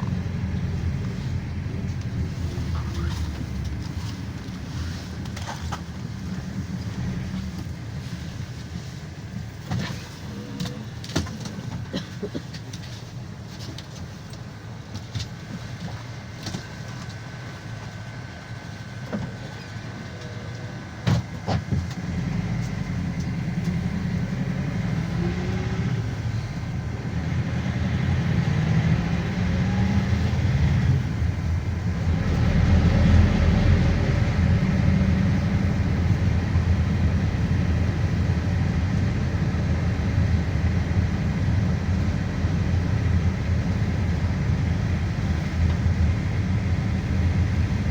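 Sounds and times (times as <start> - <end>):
bus engine and road rumble: 0.0 - 47.9
clicks inside vehicle cabin: 9.7 - 17.2.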